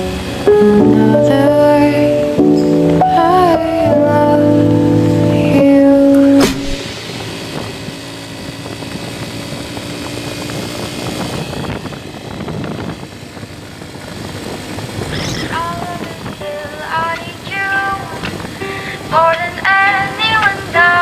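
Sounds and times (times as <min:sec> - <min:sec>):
music: 0:00.0 - 0:08.0, 0:15.6 - 0:21.0
wind rush: 0:00.0 - 0:21.0
motorcycle engine running: 0:03.9 - 0:19.4.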